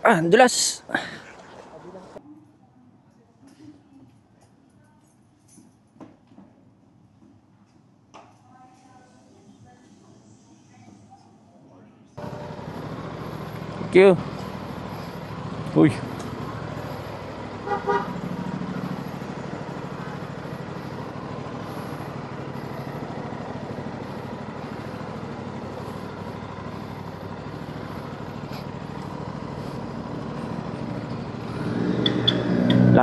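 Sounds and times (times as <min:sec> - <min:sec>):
motorcycle engine running: 0:12.2 - 0:33.0
wind and road noise: 0:12.2 - 0:33.0
vehicle horn double beep: 0:17.6 - 0:18.3.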